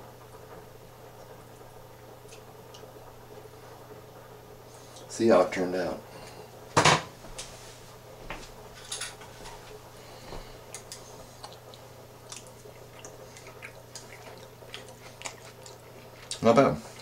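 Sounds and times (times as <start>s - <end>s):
low steady hum: 0.0s - 17.0s
quiet chewing: 10.0s - 17.0s.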